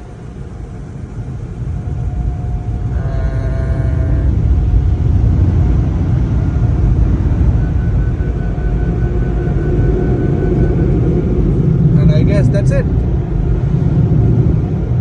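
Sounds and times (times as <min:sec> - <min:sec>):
car wash equipment rumbling: 0:00.0 - 0:15.0
faint high repeating tone: 0:00.8 - 0:12.2.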